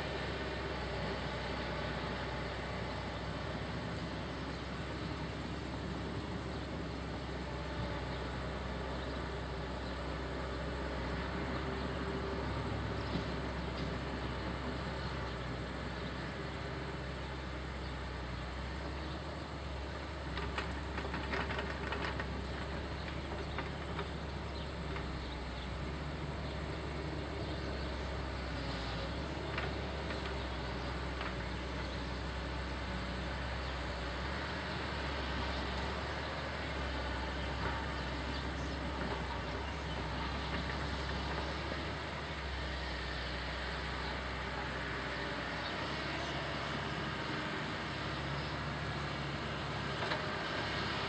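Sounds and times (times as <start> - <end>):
diesel machinery running: 0.0 - 51.0
clattering and scraping: 20.3 - 25.2.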